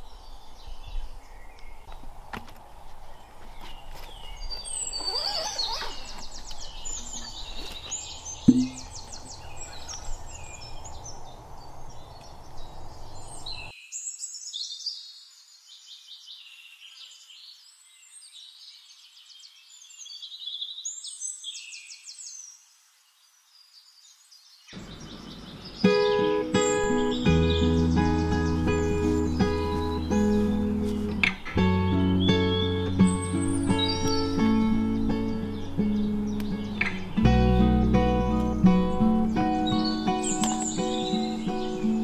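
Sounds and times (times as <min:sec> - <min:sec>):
birds singing: 0:00.0 - 0:42.0
sharp knock: 0:08.5 - 0:08.9.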